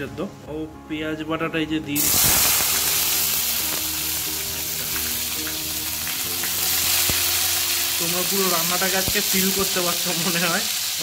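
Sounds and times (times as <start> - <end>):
paste sizzling in hot oil: 2.0 - 11.0.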